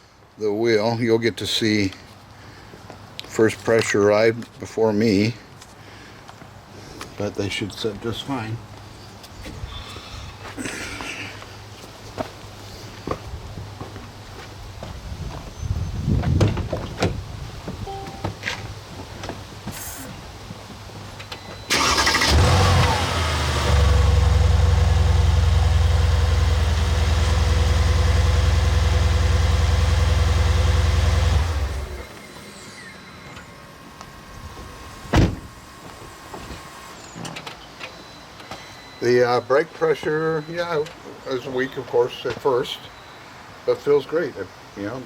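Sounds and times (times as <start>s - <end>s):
sharp thump: 35.1s - 35.5s.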